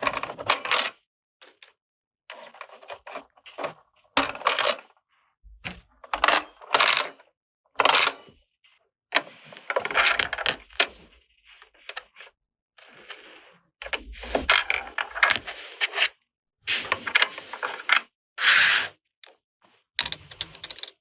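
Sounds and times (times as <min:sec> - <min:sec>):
plastic toy pieces clattering: 0:20.0 - 0:21.0.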